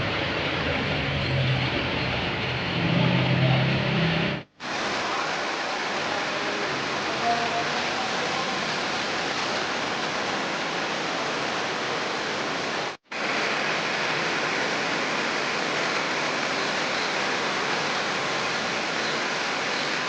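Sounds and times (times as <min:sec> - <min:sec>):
steady hissing noise: 0:04.4 - 0:20.0.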